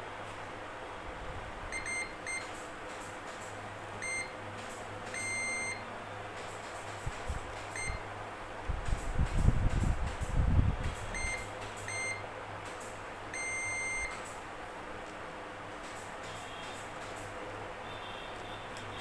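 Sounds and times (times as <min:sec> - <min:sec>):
steady low hum: 0:00.0 - 0:19.0
multimeter continuity beeps: 0:01.7 - 0:02.6, 0:04.0 - 0:04.4, 0:05.1 - 0:05.9, 0:07.7 - 0:08.1, 0:11.0 - 0:12.3, 0:13.3 - 0:14.4.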